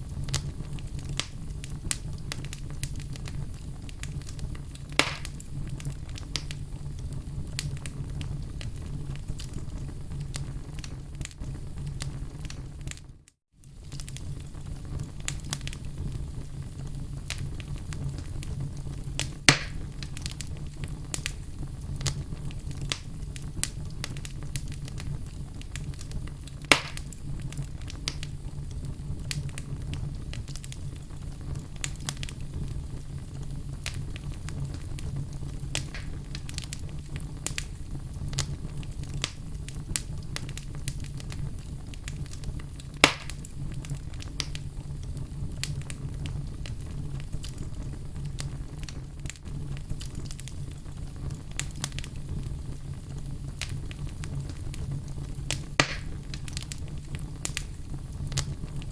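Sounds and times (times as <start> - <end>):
wood fire crackling: 0.0 - 58.9
sharp pops from burning logs: 0.2 - 6.6, 13.8 - 15.9, 19.1 - 21.4, 22.0 - 32.7, 33.8 - 58.9.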